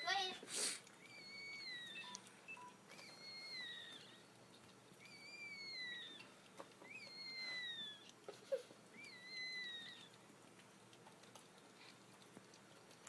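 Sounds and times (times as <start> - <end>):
puppy squealing: 1.0 - 4.3, 5.0 - 10.2.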